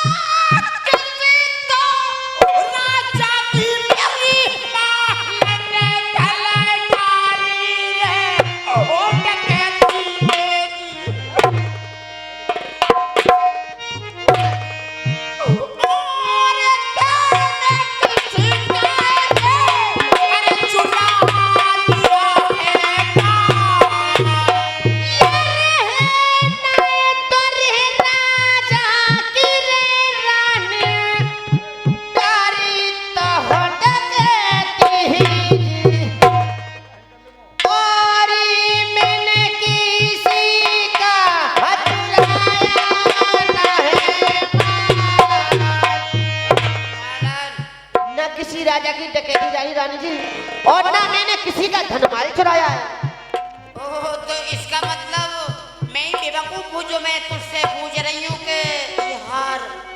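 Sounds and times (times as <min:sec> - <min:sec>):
person singing: 0:00.0 - 0:11.4, 0:15.3 - 0:36.6, 0:37.6 - 0:46.3, 0:47.0 - 0:59.9
held instrumental tones: 0:02.4 - 0:27.2, 0:33.2 - 0:37.8
hand drum beats: 0:08.4 - 0:11.8, 0:12.5 - 0:16.3, 0:17.1 - 0:29.8, 0:33.3 - 0:36.7, 0:38.8 - 0:48.2, 0:51.6 - 0:59.6.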